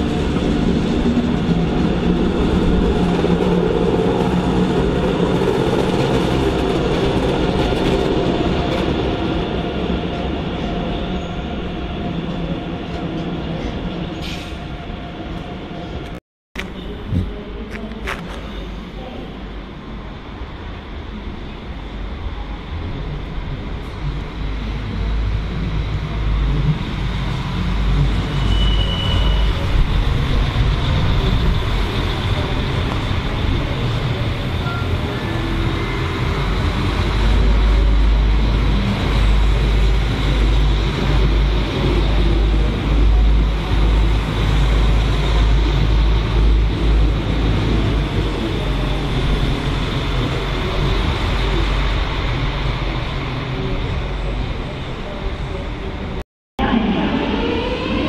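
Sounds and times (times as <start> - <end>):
train rumbling: 0.0 - 58.0
high squeal: 28.2 - 29.8.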